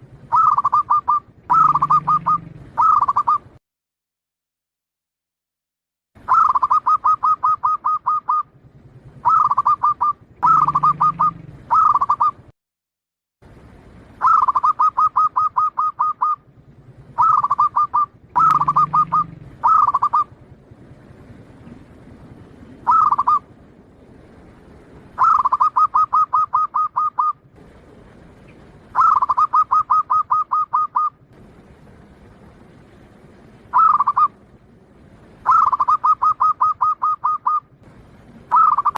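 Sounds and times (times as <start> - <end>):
dove trilled cooing: 0.1 - 3.6, 6.2 - 12.5, 14.2 - 20.5, 21.2 - 23.7, 24.7 - 27.5, 28.3 - 31.2, 33.6 - 34.4, 35.3 - 38.9.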